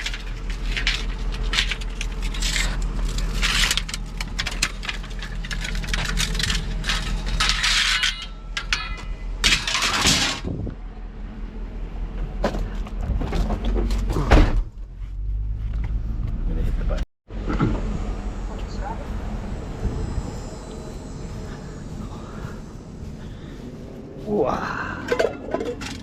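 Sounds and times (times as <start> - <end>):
scrap pieces clattering: 0.0 - 10.5
steady low hum: 14.7 - 26.0.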